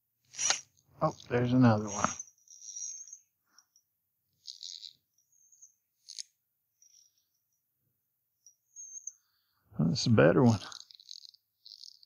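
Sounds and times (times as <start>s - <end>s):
short scratchy sounds: 0.3s - 2.2s
small birds chirping: 0.3s - 12.0s.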